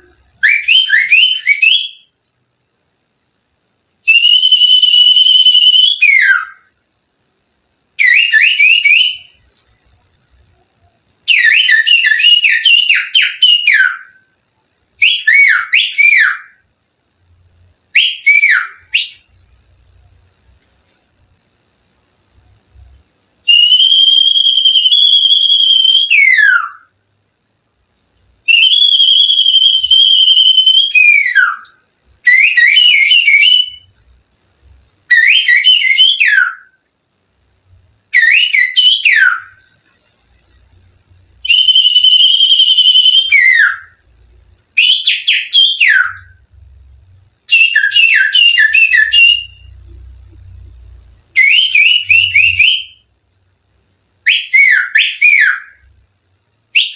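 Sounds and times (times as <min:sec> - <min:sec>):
finger whistling birdsong imitation: 0:00.0 - 0:02.1, 0:04.1 - 0:06.7, 0:08.0 - 0:09.5, 0:10.8 - 0:14.2, 0:15.0 - 0:16.6, 0:18.0 - 0:19.3, 0:23.5 - 0:26.9, 0:28.5 - 0:33.9, 0:35.1 - 0:36.8, 0:38.2 - 0:39.6, 0:41.4 - 0:44.0, 0:44.8 - 0:46.4, 0:47.5 - 0:49.9, 0:51.4 - 0:53.0, 0:54.3 - 0:55.8.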